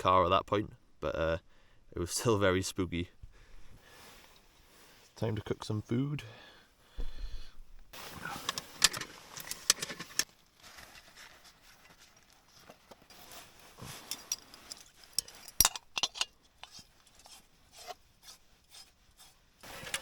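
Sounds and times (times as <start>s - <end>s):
rustling and rubbing of gear: 3.5s - 5.6s, 7.0s - 20.0s.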